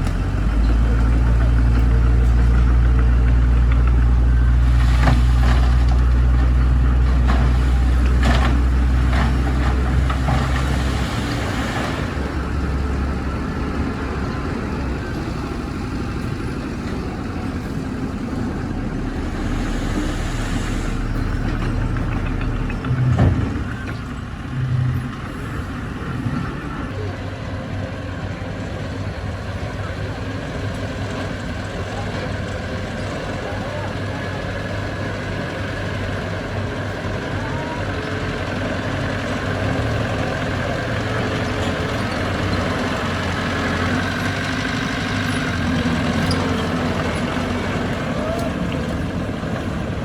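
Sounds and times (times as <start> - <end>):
diesel engine running: 0.0 - 50.0
knocks and clanks: 21.0 - 25.1.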